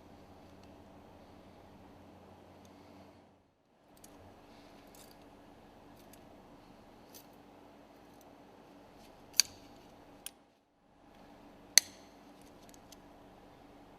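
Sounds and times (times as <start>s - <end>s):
faint steady hum: 0.0s - 13.9s
sharp metallic tool clicks: 11.8s - 12.1s.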